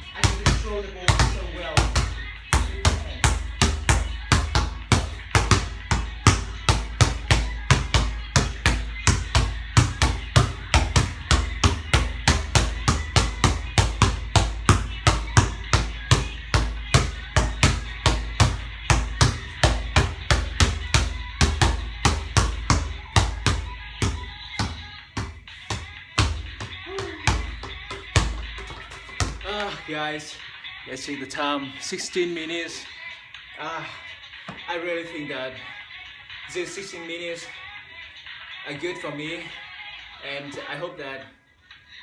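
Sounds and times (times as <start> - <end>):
basketball dribbling: 0.0 - 29.9.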